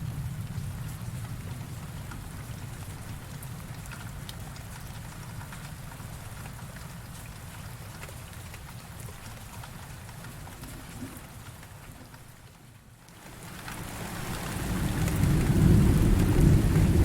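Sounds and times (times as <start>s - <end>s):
heavy rain falling: 0.0s - 17.0s
thunder rumble: 14.3s - 17.0s.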